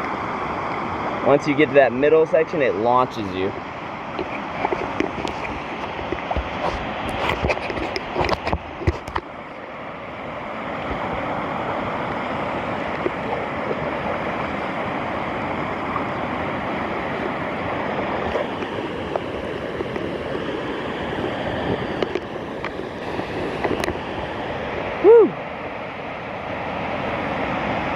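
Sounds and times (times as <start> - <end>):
whitewater rushing: 0.0 - 27.9.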